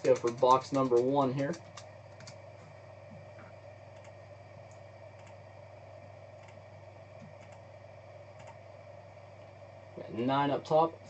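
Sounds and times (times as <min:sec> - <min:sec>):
faint computer clicks: 0:00.0 - 0:02.7, 0:03.9 - 0:05.4, 0:07.2 - 0:07.6
steady low hum: 0:00.0 - 0:11.0.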